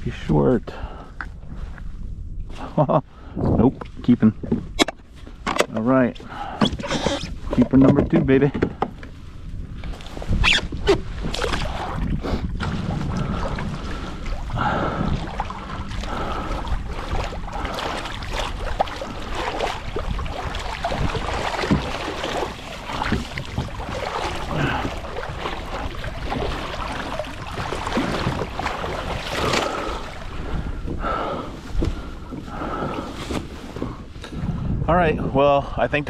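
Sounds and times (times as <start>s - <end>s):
wind buffeting microphone: 0.0s - 36.0s
water washing against kayak hull: 3.6s - 34.8s
knocks and clatter from handling: 6.6s - 9.1s.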